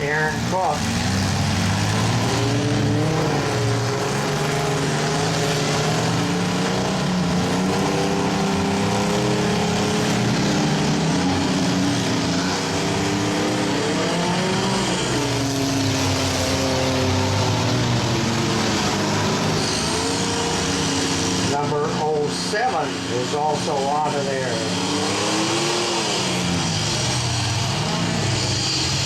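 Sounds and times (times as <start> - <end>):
car engines revving: 0.0 - 29.0.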